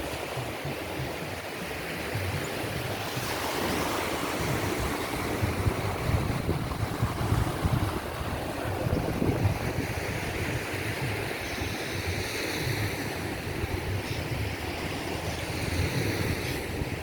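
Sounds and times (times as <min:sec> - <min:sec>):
surf breaking on a beach: 0:00.0 - 0:17.0
wind buffeting the microphone: 0:00.0 - 0:17.0.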